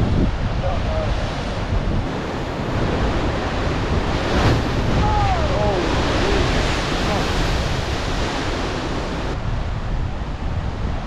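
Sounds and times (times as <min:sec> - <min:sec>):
ocean surf breaking on rocks: 0:00.0 - 0:09.8
wind buffeting microphone: 0:00.0 - 0:11.0.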